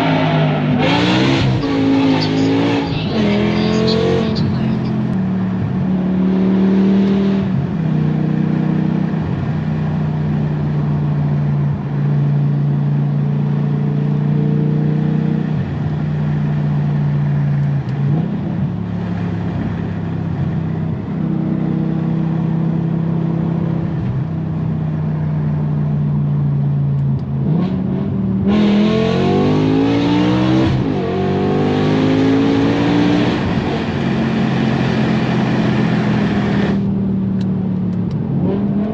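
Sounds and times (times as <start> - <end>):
loud car engine revving: 0.0 - 24.7, 27.2 - 37.5, 38.1 - 38.9.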